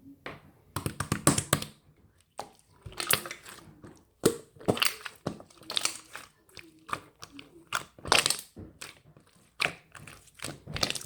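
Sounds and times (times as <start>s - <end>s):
crisp crackling and crunching: 2.4s - 11.0s.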